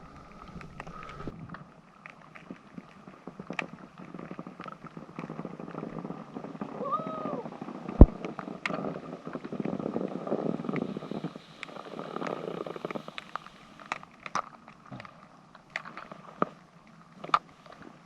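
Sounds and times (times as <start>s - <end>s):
rough scraping in snow: 0.0s - 1.3s
snow crunching: 0.0s - 1.3s.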